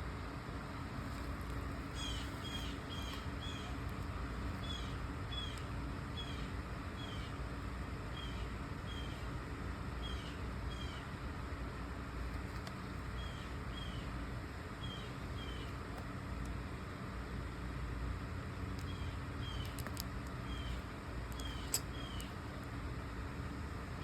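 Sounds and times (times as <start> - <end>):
fan-like hum and hiss: 0.0 - 24.0
bird chirping: 1.9 - 3.8, 4.6 - 7.3, 13.2 - 14.1, 14.8 - 15.7, 18.8 - 19.8, 20.5 - 20.8, 21.4 - 22.3.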